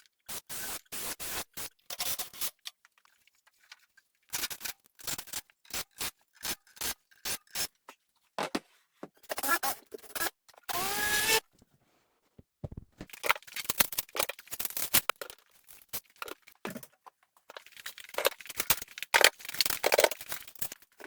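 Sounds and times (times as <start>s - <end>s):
power tool whine: 10.7s - 11.4s.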